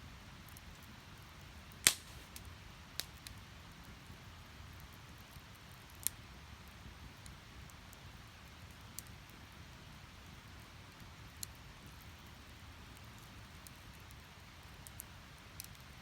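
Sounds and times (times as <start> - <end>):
firewood crackling and popping: 0.4 - 16.0.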